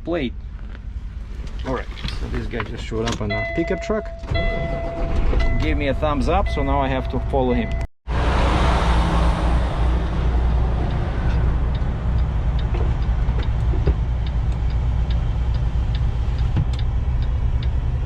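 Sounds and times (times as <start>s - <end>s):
diesel truck engine drone: 0.1s - 18.0s
light even ticking: 10.8s - 18.0s.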